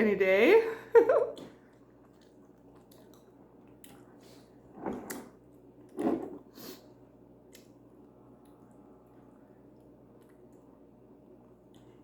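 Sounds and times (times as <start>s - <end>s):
chewing food: 1.3s - 4.5s, 7.4s - 12.0s.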